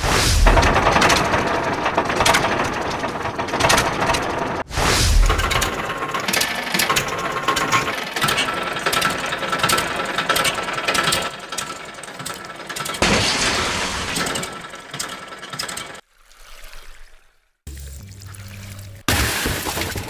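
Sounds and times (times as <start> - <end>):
mechanical clicking and rattling: 0.4 - 4.7, 5.3 - 16.0.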